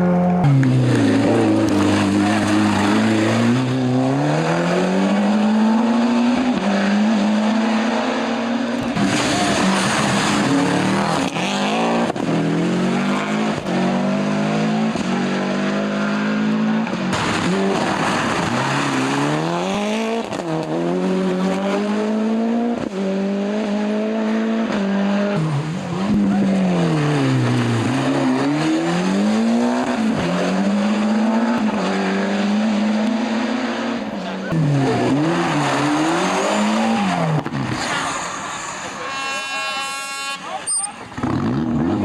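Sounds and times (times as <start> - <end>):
rally car engine revving: 0.0 - 42.0.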